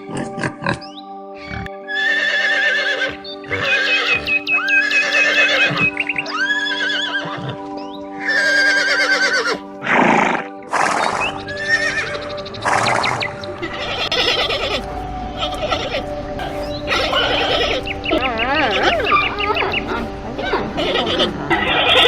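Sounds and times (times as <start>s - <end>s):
background music: 0.0s - 22.0s
horse whinnying: 1.5s - 7.6s, 8.2s - 14.8s, 16.9s - 22.0s.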